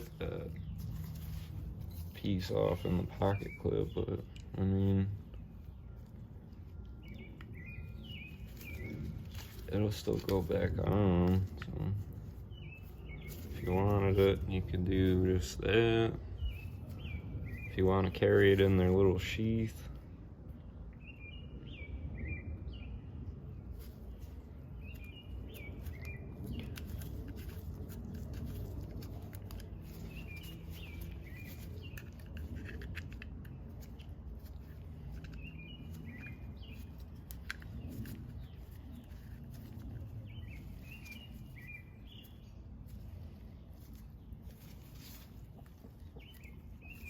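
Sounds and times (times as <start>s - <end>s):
light clicks and scrapes: 0.0s - 4.6s, 6.0s - 15.7s, 23.7s - 47.0s
low background noise: 0.0s - 47.0s.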